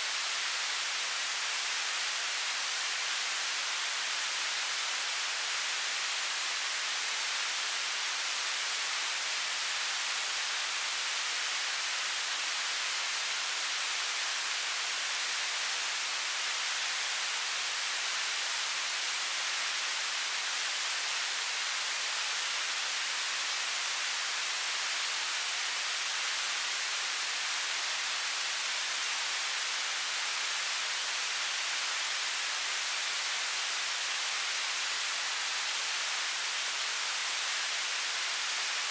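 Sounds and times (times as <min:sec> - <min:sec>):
television static hiss: 0:00.0 - 0:38.9.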